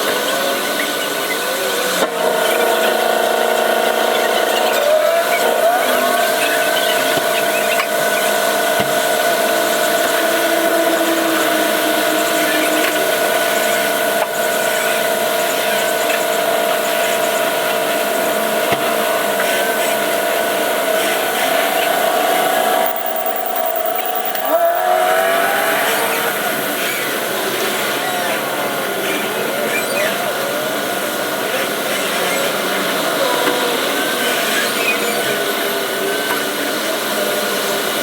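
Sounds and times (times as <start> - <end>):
steady whine: 19.2 - 25.4.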